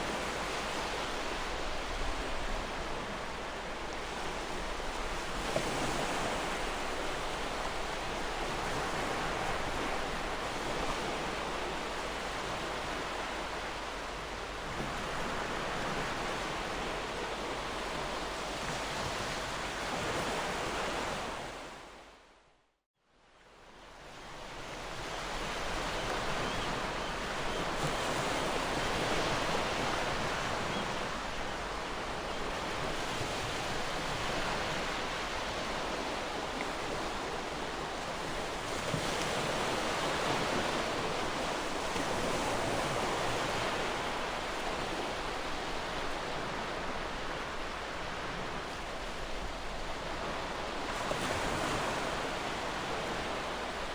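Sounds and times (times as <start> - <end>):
ocean waves washing on shore: 23.7 - 53.9.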